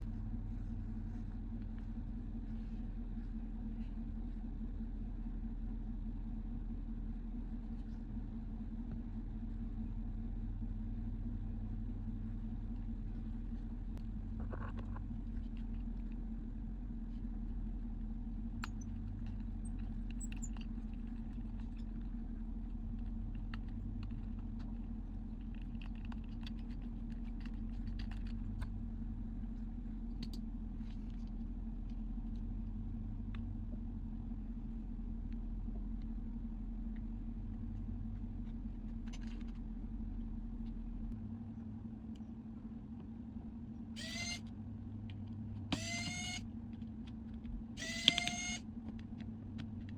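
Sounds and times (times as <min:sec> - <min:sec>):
low electrical hum: 0:00.0 - 0:49.9
small tools clicking and tapping: 0:47.0 - 0:49.9.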